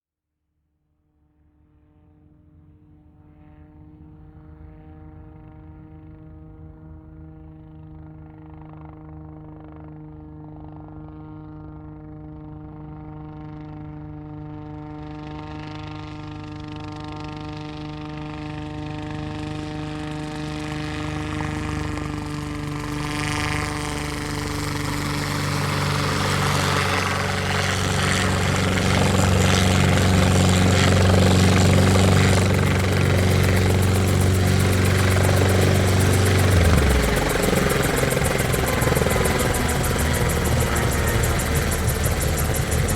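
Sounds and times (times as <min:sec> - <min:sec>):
helicopter whine and rotor chop: 0:16.7 - 0:42.9.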